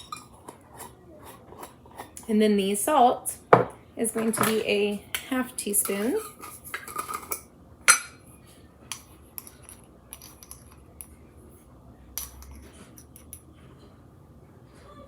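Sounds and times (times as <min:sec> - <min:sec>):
measuring spoon tapping bowls: 0:00.0 - 0:02.3, 0:05.6 - 0:08.2, 0:08.9 - 0:11.1, 0:12.2 - 0:13.5.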